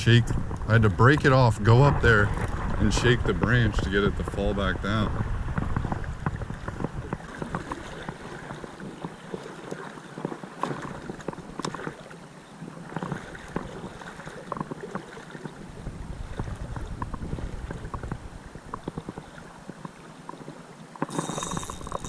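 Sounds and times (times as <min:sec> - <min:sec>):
creek water running and splashing: 0:00.0 - 0:22.0
small splashes and ticks: 0:05.5 - 0:22.0.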